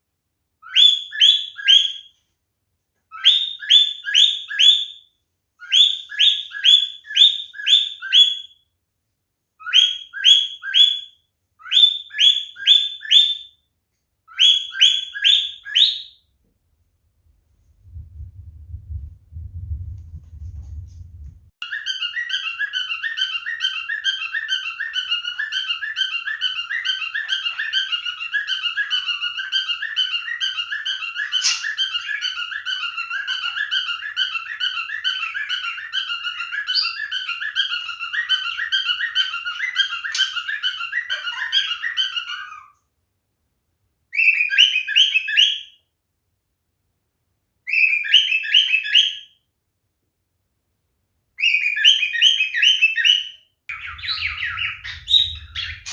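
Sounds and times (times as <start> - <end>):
cockatiel chirping: 0.6 - 2.2, 3.1 - 8.6, 9.6 - 13.6, 14.3 - 16.2, 21.6 - 42.8, 44.1 - 45.8, 47.7 - 49.4, 51.4 - 55.9.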